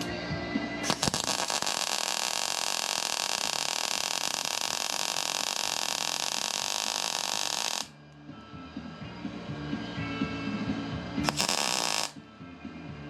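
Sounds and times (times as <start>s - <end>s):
welder arc hissing crackle: 0.8s - 7.9s, 11.2s - 12.2s.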